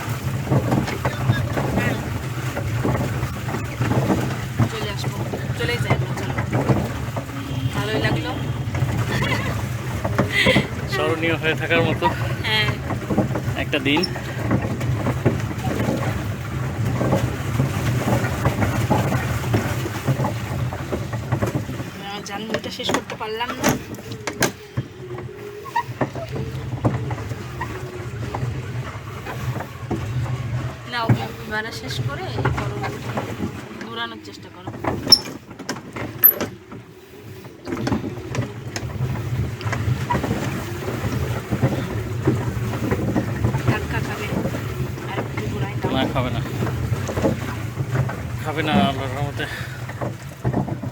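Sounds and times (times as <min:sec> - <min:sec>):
wind buffeting microphone: 0:00.0 - 0:34.0, 0:35.0 - 0:50.9
boat knocking on water: 0:00.0 - 0:50.9.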